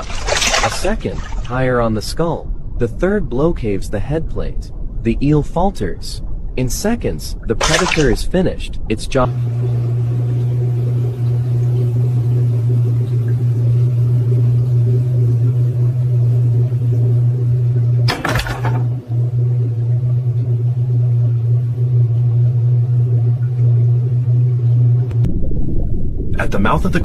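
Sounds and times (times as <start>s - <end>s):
loud low drone: 9.2s - 27.0s.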